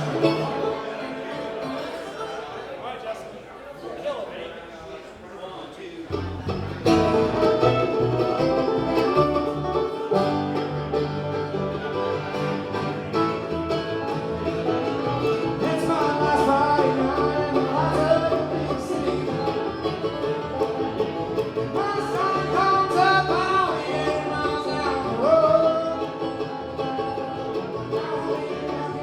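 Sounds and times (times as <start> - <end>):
guitar picking: 0.0 - 2.4, 6.1 - 29.0
banjo picking: 0.0 - 2.8, 6.1 - 29.0
bass line: 6.1 - 29.0
sliding lead melody: 6.7 - 29.0.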